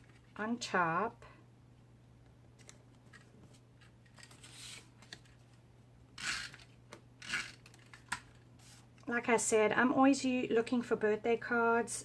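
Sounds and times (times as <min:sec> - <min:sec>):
paper rustle: 0:02.6 - 0:05.5.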